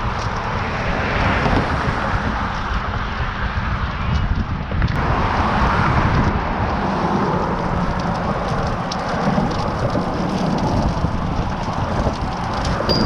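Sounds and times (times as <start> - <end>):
wind buffeting microphone: 0.0 - 13.0
tyres hissing over trail: 5.0 - 13.0.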